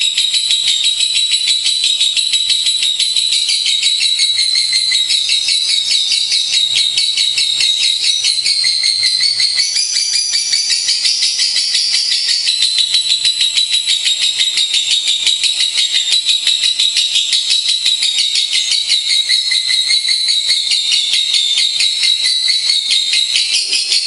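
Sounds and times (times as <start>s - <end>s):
lovebirds chirping rapidly: 23.2s - 24.0s.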